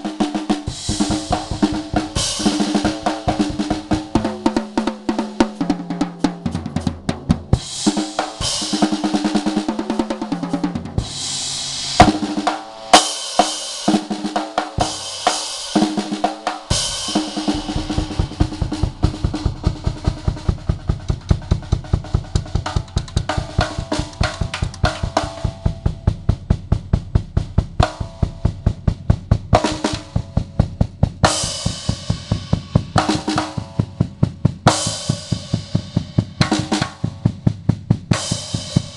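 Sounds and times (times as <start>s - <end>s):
drum kit solo: 0.0s - 38.9s
crash cymbal hits: 11.0s - 13.8s.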